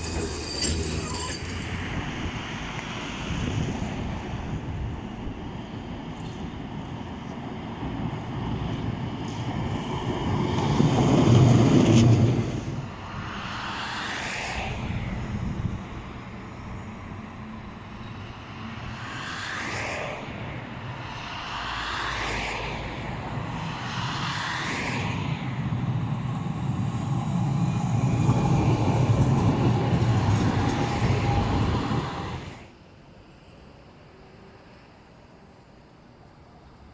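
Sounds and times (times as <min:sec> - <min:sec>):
tram motor whine: 0:00.0 - 0:06.1, 0:25.5 - 0:35.6
tram rumbling: 0:00.0 - 0:36.9.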